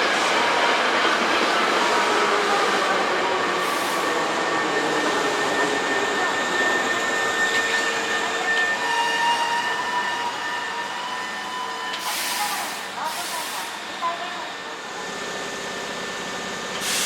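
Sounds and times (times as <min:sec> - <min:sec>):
electric train passing: 0:00.0 - 0:12.1.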